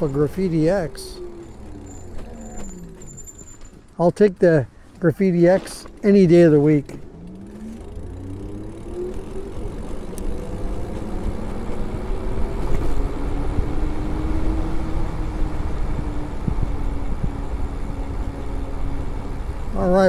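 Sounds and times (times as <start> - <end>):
electric bike motor whining: 0.0 - 4.0, 4.8 - 20.0
wind rumbling on microphone: 5.8 - 20.0.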